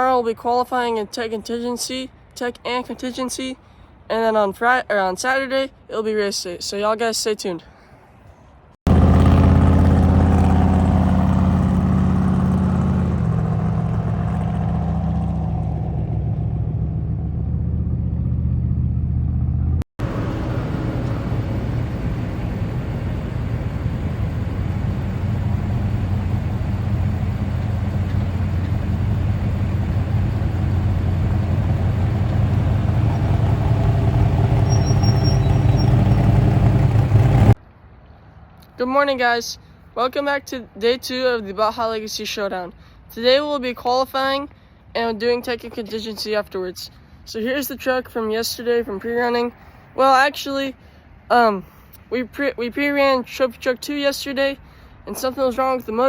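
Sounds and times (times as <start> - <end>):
truck engine driving: 8.9 - 37.6.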